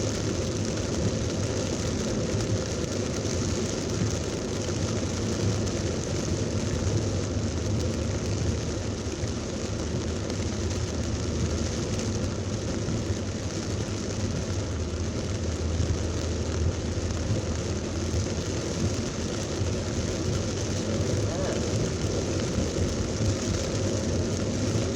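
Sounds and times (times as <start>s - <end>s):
heavy rain pouring: 0.0s - 24.9s
low thunder rumble: 17.2s - 24.9s.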